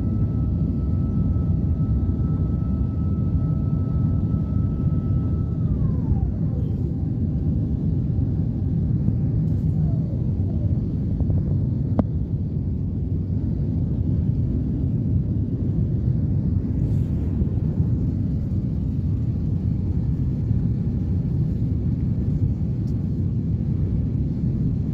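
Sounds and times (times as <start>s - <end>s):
jet engine and airflow rumble: 0.0s - 24.9s.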